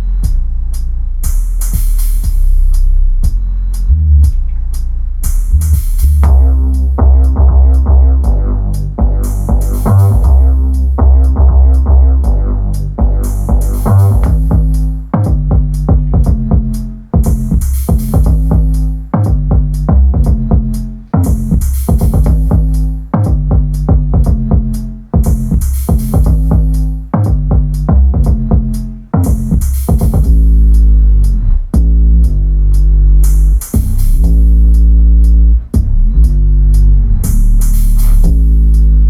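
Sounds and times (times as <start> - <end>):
electronic music with deep bass: 0.0 - 39.0.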